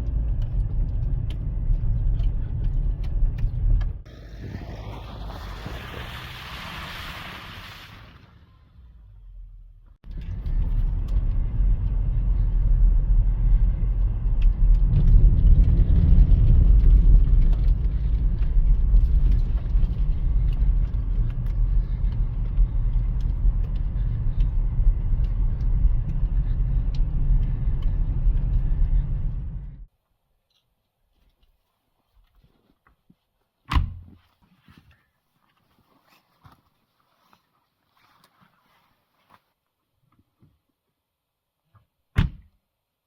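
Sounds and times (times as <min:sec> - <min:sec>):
car road and engine rumble: 0:00.0 - 0:29.9.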